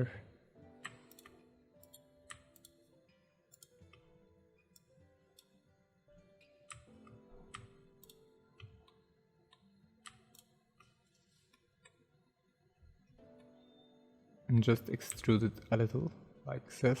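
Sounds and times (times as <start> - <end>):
quiet background music: 0.0 - 17.0
mouse and keyboard clicks: 0.8 - 2.8, 6.7 - 11.0.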